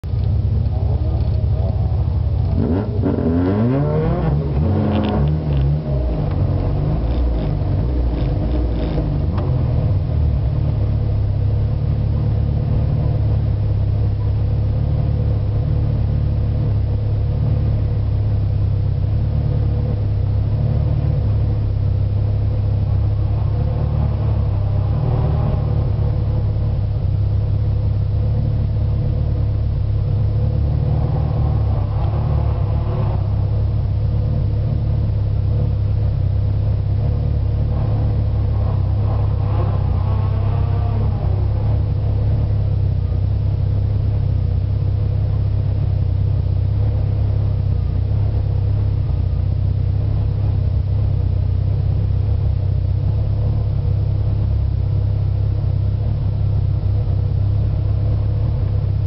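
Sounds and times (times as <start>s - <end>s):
car engine revving and idling: 0.0s - 59.0s.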